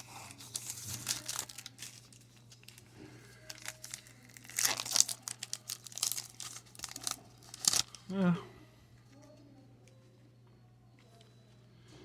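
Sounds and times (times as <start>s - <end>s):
plastic wrapper crinkling and tearing: 0.0s - 8.0s.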